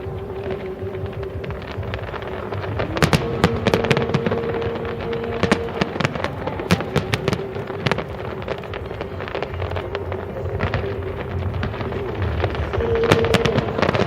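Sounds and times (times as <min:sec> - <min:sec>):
distant firework rumble: 0:00.0 - 0:14.0
fireworks cracking and banging: 0:00.0 - 0:14.0.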